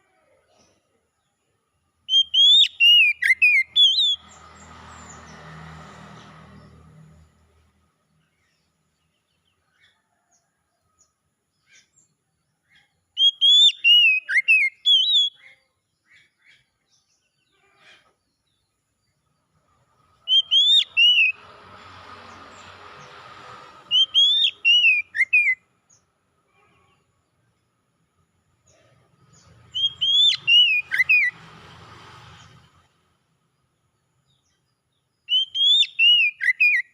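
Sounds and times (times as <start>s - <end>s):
bird singing whistled notes: 2.0s - 4.4s, 12.7s - 15.6s, 20.2s - 21.4s, 23.9s - 26.0s, 29.3s - 31.4s, 35.2s - 36.9s.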